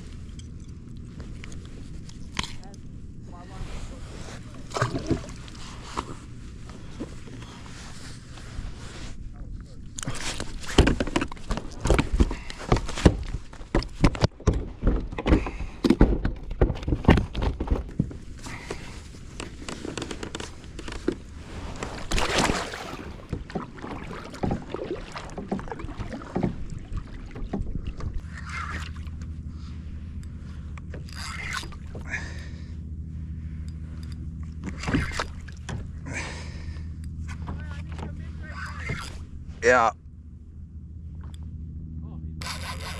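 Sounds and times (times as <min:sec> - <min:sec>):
water sounds: 0:00.0 - 0:12.5, 0:19.6 - 0:32.5, 0:33.9 - 0:39.4
steady low hum: 0:00.0 - 0:42.9.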